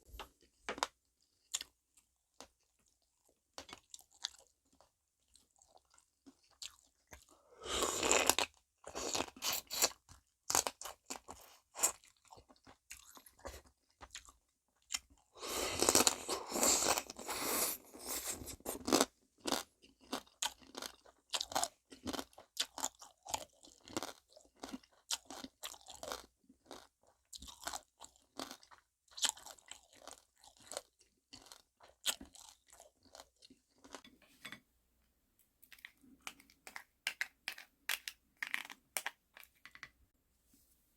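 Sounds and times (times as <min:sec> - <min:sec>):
crunching and chewing crab shell: 0:02.4 - 0:34.0.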